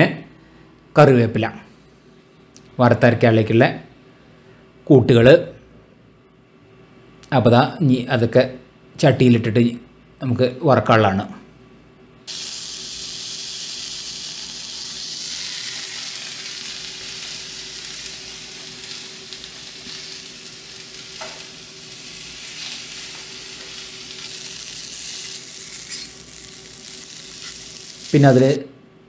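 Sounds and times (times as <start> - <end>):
food sizzling in a pan: 12.3 - 28.5.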